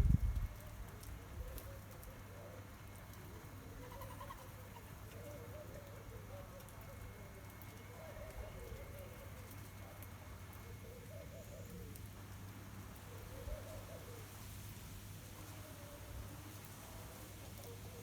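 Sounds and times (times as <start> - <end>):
faint low bird calls: 1.1 - 12.1.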